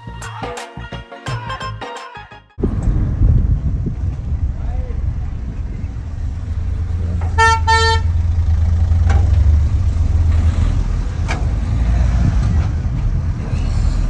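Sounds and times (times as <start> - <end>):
car driving rumble: 2.6 - 14.0
car horn beeps: 7.2 - 8.7.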